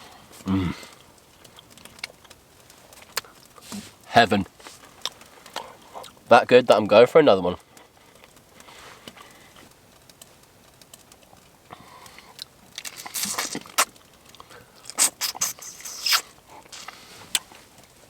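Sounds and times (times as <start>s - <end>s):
prawn shell cracking: 12.0s - 17.5s.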